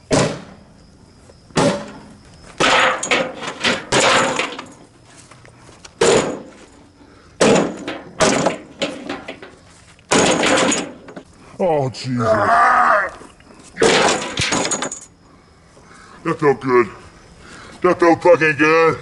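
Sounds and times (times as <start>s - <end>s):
metal and plastic parts clattering: 2.6s - 4.9s, 7.4s - 11.3s, 13.8s - 15.1s.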